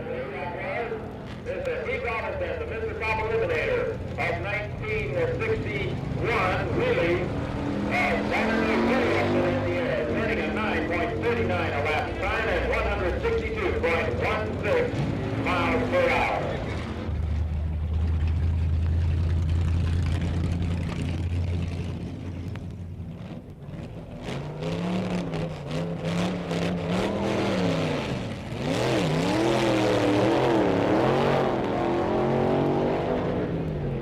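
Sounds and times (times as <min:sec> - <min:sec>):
drag racing engine revving: 0:00.0 - 0:34.0.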